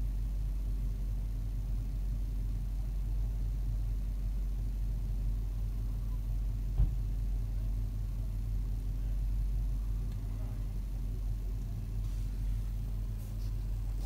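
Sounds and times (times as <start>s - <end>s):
vehicle engine idling: 0.0s - 14.0s
dull thump: 6.7s - 7.1s.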